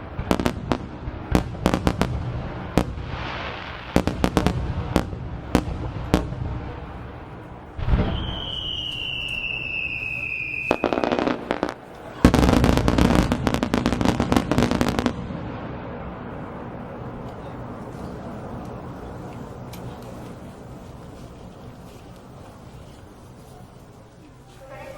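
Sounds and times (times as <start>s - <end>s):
firework boom: 0.0s - 19.2s
fireworks crackling and popping: 0.0s - 24.9s
fireworks cracks: 0.0s - 24.9s
firework whistling: 1.4s - 21.1s.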